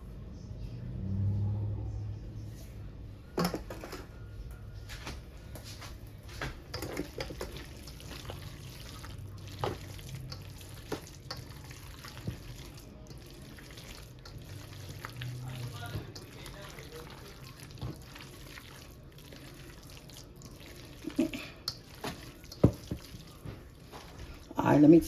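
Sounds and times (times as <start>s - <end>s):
low hum: 0.0s - 6.3s
potato salad stirred in a bowl: 4.9s - 25.0s.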